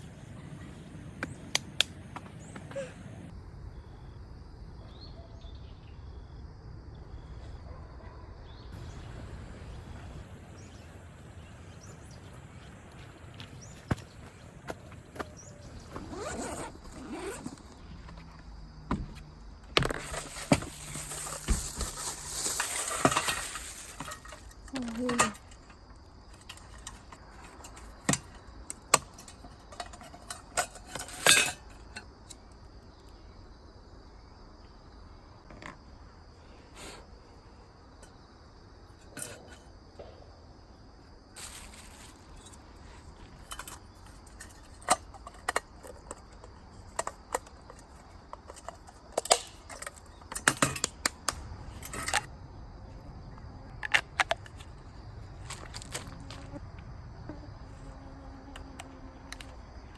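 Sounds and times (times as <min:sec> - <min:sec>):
insects trilling: 0:08.4 - 0:59.9
camping gear clinking: 0:10.5 - 0:32.5, 0:39.0 - 0:39.8, 0:41.4 - 0:52.3, 0:53.8 - 0:56.5.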